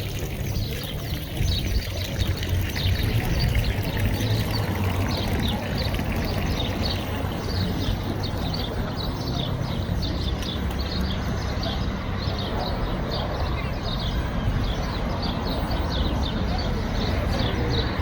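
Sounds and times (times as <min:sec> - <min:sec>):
water running: 0:00.0 - 0:08.2
small birds chirping: 0:00.0 - 0:18.0.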